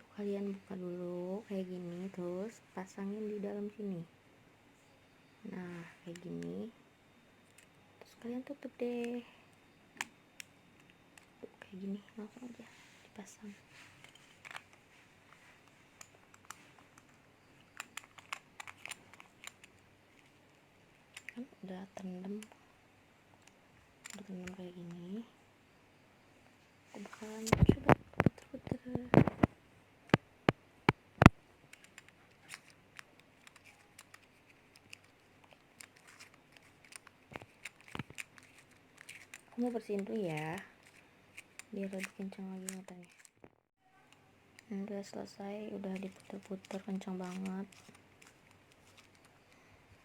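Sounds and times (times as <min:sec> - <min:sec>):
small plastic clicks: 0:14.0 - 0:14.8, 0:15.6 - 0:20.5, 0:21.1 - 0:21.4, 0:30.1 - 0:44.7, 0:45.8 - 0:49.6.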